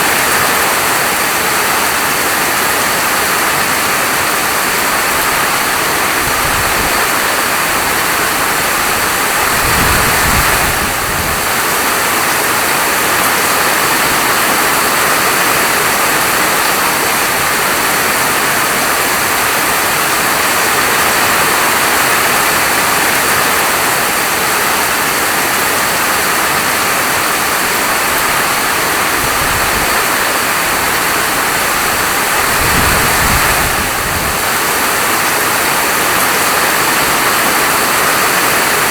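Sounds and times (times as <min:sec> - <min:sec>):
heavy rainfall: 0:00.0 - 0:38.9.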